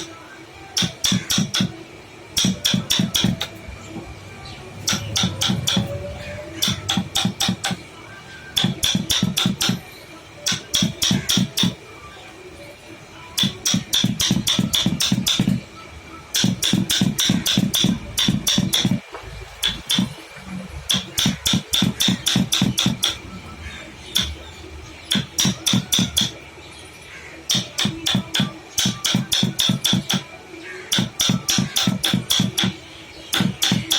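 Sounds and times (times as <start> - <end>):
hammer tapping chisel: 0.8 - 1.8, 2.4 - 3.5, 4.9 - 6.0, 6.6 - 7.8, 8.6 - 9.8, 10.5 - 11.8, 13.4 - 15.6, 16.4 - 19.0, 19.6 - 20.2, 20.9 - 23.2, 24.1 - 24.4, 25.1 - 26.4, 27.5 - 30.3, 30.9 - 33.9.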